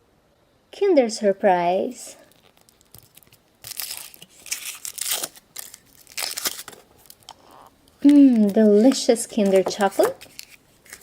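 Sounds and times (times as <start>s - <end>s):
foil wrapper crinkling and tearing: 2.3s - 11.0s.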